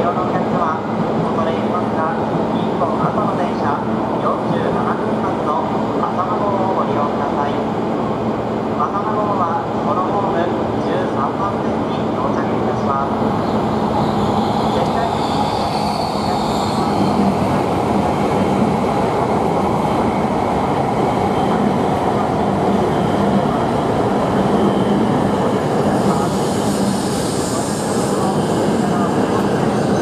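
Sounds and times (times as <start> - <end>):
high-pitched wheel squeals: 14.2 - 17.2.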